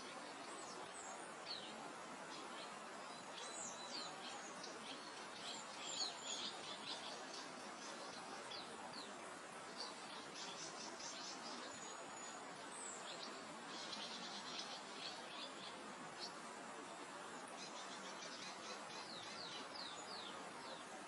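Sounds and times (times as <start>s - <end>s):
songbirds chirping: 0.0s - 21.0s
wind through grass: 0.0s - 21.0s.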